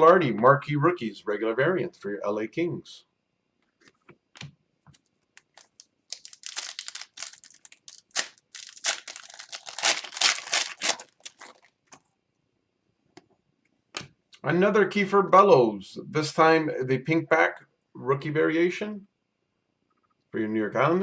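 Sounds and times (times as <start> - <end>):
card pack wrapper tearing and crinkling: 5.4 - 11.7.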